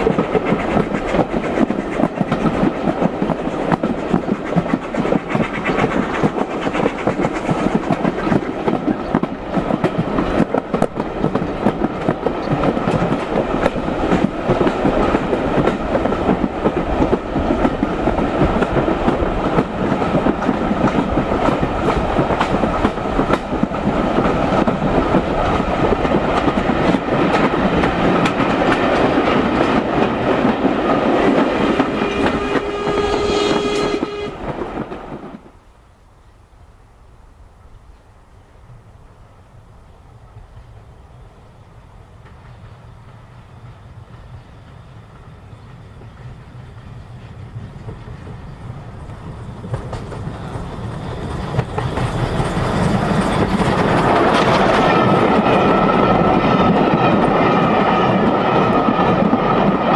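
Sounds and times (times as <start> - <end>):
train carriage rumble: 0.0 - 35.9, 37.3 - 59.9.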